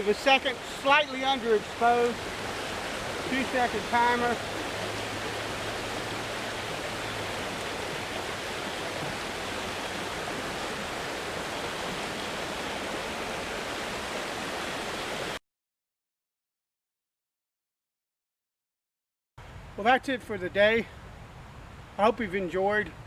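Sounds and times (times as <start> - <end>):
creek water rushing over rocks: 0.0 - 15.4.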